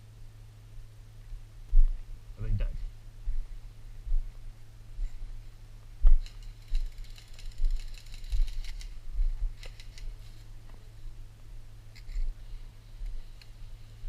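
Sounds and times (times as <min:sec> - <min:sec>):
airsoft guns rapid clicking: 0:06.2 - 0:09.0, 0:09.6 - 0:10.2.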